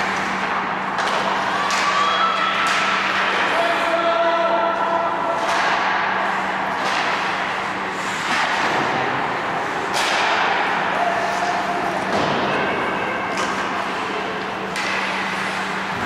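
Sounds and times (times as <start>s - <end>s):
skates and sticks scraping ice: 5.3s - 16.0s
low hum: 12.7s - 16.0s.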